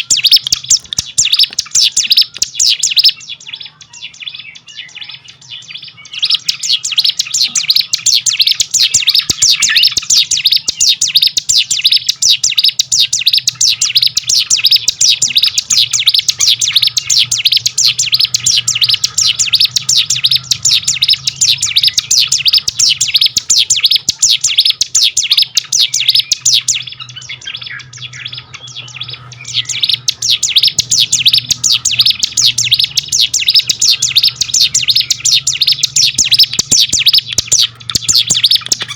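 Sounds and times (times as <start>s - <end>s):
bird chirping song: 0.0s - 38.9s
faint low hum: 0.0s - 38.9s.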